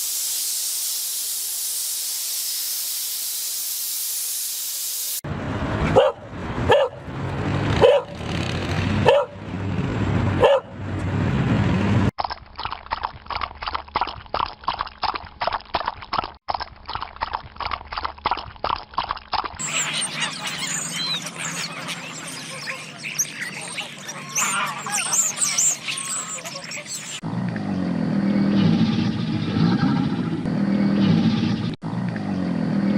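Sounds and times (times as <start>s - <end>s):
fast series of animal calls: 19.6s - 27.2s
loud animal calls: 19.6s - 27.2s.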